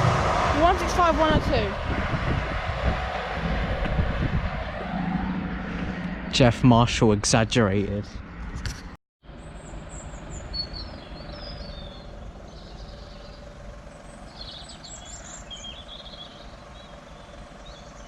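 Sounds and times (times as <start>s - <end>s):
low background rumble: 0.0s - 8.4s
small birds chirping: 9.4s - 18.0s.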